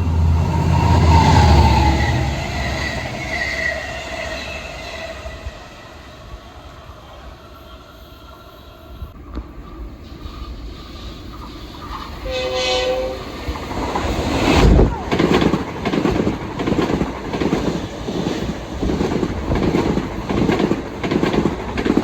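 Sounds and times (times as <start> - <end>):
train horn blast: 0.0 - 6.0, 12.2 - 13.4
train wheels clickety-clack: 9.1 - 22.0.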